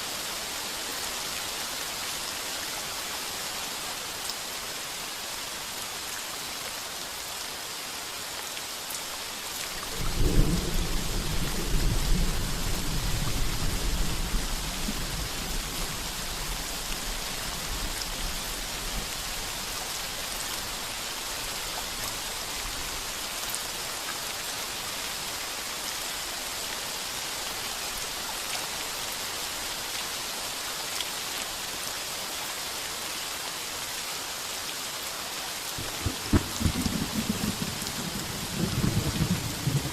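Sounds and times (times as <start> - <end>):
heavy rain on a tin roof: 0.0 - 39.9
thunder rumbling: 9.9 - 16.2, 35.8 - 39.9.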